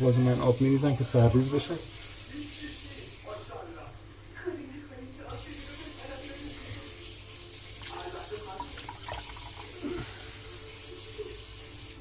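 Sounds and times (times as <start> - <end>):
water pouring and splashing: 5.3 - 12.0.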